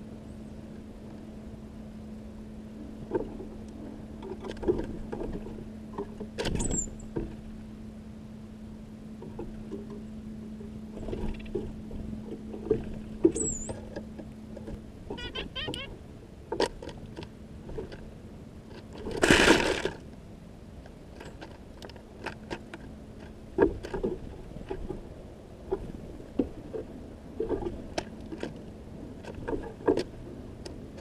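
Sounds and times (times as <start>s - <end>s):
short high bird call: 15.1s - 16.0s.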